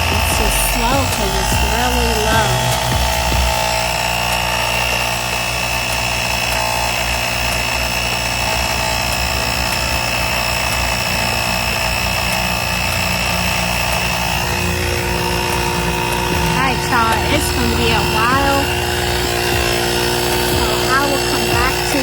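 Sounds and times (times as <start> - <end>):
air compressor whining and rattling: 0.0 - 22.0.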